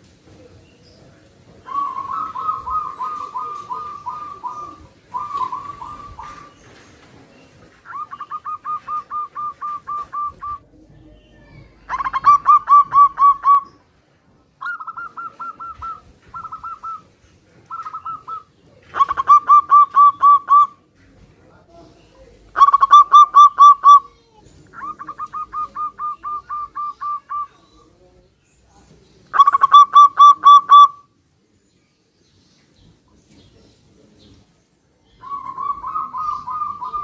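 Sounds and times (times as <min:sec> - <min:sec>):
doves cooing: 0:01.6 - 0:13.8, 0:14.6 - 0:20.8, 0:22.3 - 0:27.9, 0:29.3 - 0:31.0, 0:35.2 - 0:37.0.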